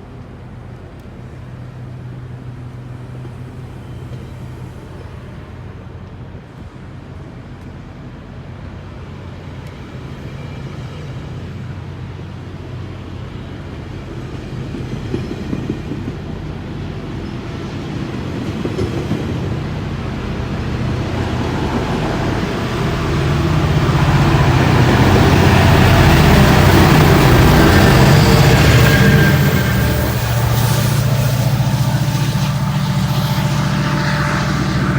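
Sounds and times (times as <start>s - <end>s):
diesel train engine hum: 0.0s - 34.9s
train rumble: 0.0s - 34.9s.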